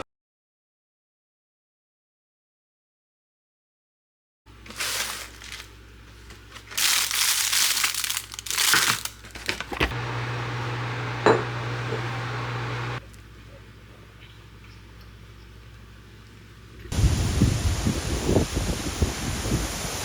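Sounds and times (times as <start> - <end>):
machine hum with whooshing fan: 4.5 - 20.0
packaging crinkling: 4.6 - 10.0.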